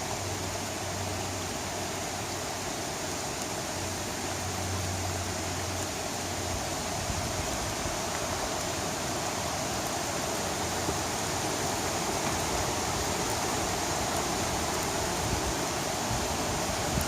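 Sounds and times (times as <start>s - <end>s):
fast-flowing water rushing: 0.0s - 17.0s.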